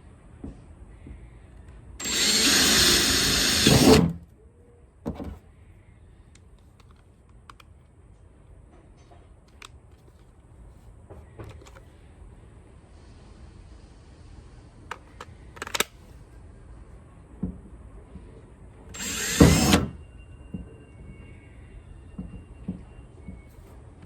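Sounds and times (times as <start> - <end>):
power drill drilling: 2.0 - 4.2, 19.0 - 20.0.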